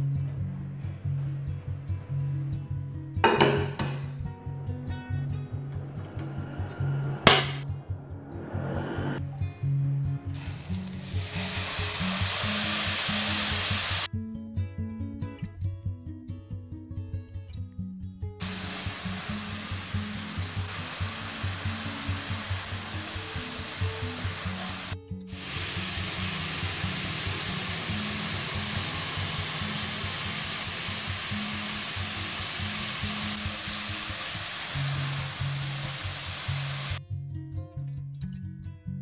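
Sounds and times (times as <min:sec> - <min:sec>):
spice paste sizzling in oil: 0:10.4 - 0:14.1, 0:18.4 - 0:37.0
background music: 0:18.4 - 0:36.8.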